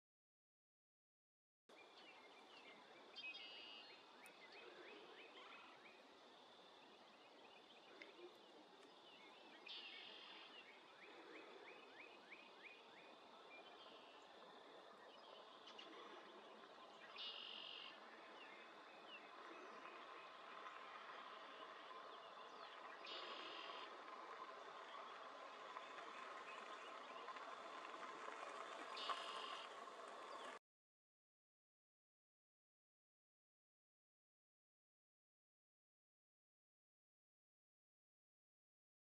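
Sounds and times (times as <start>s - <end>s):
distant small birds calling: 1.7s - 30.6s.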